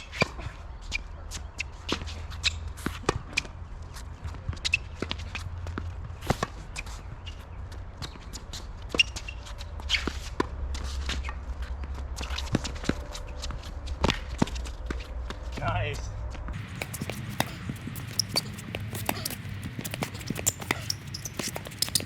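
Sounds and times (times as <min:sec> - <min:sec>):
footsteps on court: 0:01.3 - 0:22.0
tennis ball bouncing and struck: 0:16.6 - 0:22.0.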